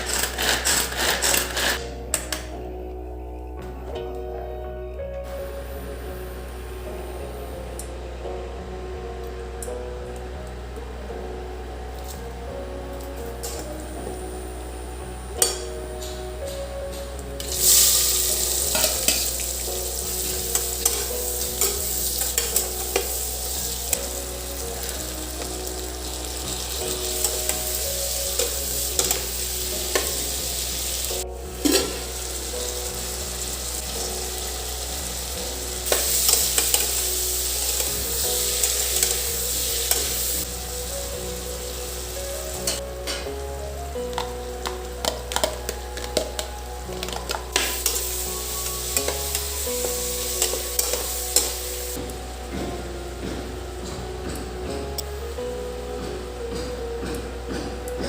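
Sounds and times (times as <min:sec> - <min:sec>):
food sizzling in a pan: 0:17.4 - 0:42.8, 0:45.1 - 0:52.0.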